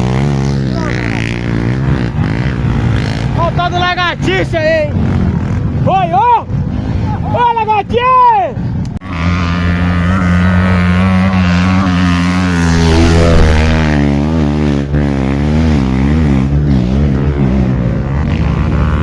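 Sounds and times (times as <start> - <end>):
motorcycle engine revving: 9.0 - 19.0.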